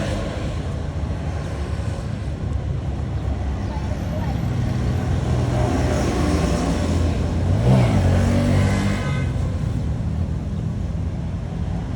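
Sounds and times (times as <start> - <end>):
vehicle engine rumbling: 0.0 - 11.9.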